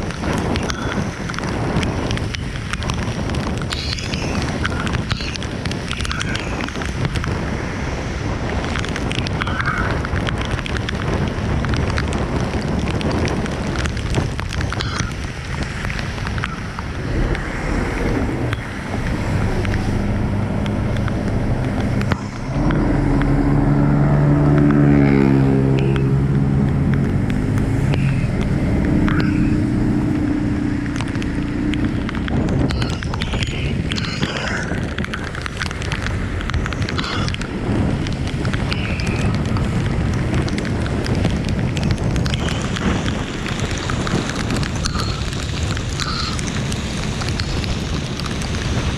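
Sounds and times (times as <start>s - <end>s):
road traffic: 0.0s - 48.9s
steady rain: 0.0s - 48.9s
vehicle engine passing: 17.0s - 32.4s.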